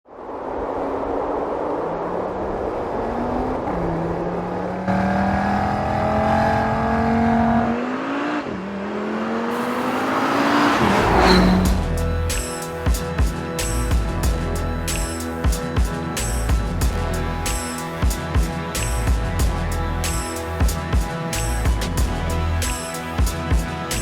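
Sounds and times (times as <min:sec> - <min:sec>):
car engine accelerating: 0:03.1 - 0:13.0
rising rush of noise: 0:09.4 - 0:12.8
music with steady beat: 0:10.8 - 0:24.0.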